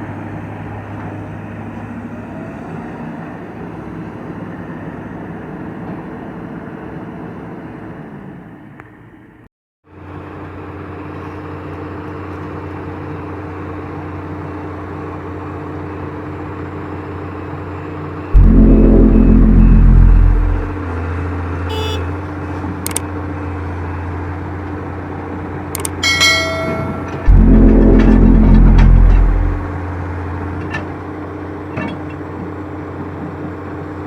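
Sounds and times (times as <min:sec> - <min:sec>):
heavy vehicle engine running: 0:18.1 - 0:34.0
second engine running: 0:18.3 - 0:30.9
loud horn blast: 0:18.4 - 0:21.0, 0:21.7 - 0:22.2, 0:26.0 - 0:30.4.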